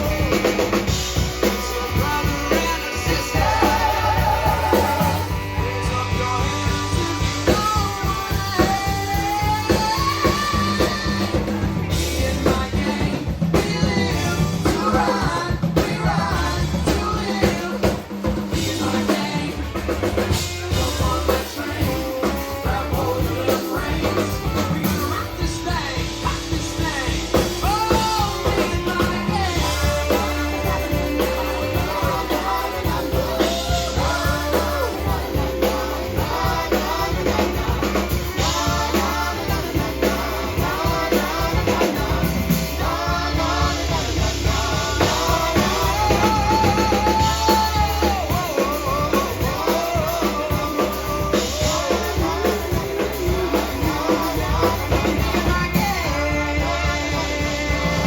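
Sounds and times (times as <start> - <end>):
bass line: 0.0 - 58.0
drum kit: 0.0 - 58.0
guitar: 0.0 - 58.0
person singing: 0.0 - 58.0.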